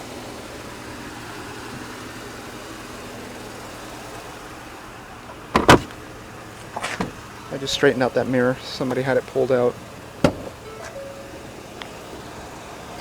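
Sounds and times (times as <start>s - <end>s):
truck engine idling: 0.0s - 13.0s
side mirror clunks: 5.5s - 6.0s, 6.6s - 7.8s, 10.2s - 12.0s.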